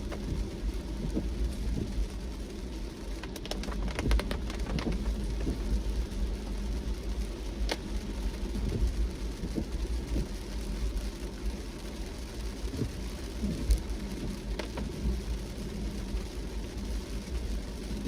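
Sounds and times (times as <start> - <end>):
low road rumble: 0.0 - 18.0
rain hitting a car: 0.0 - 18.0
sharp raindrop hits: 0.0 - 18.0.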